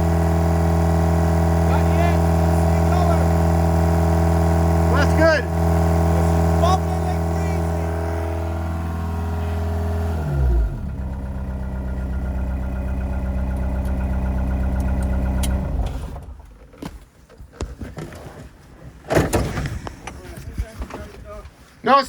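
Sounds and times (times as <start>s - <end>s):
car engine idling: 0.0s - 16.8s
thump: 19.1s - 19.8s.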